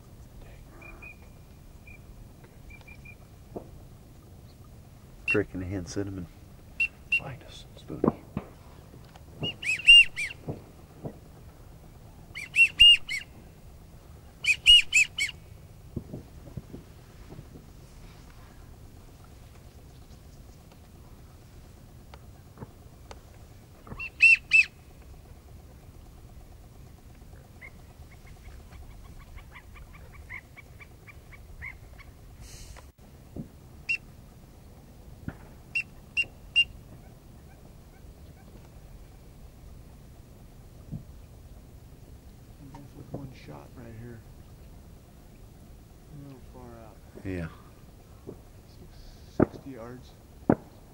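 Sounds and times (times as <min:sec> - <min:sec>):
bird whistling calls: 0:00.7 - 0:02.1, 0:02.7 - 0:03.2, 0:06.8 - 0:07.4, 0:09.4 - 0:10.5, 0:12.3 - 0:13.4, 0:14.4 - 0:15.4, 0:23.8 - 0:24.8, 0:35.7 - 0:38.5
duck calls: 0:09.4 - 0:10.4, 0:12.3 - 0:13.3, 0:14.4 - 0:15.4, 0:23.8 - 0:25.8.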